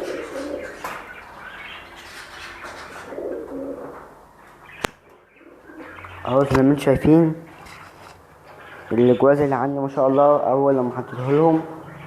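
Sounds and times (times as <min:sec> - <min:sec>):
caged birds calling: 0:00.0 - 0:12.0.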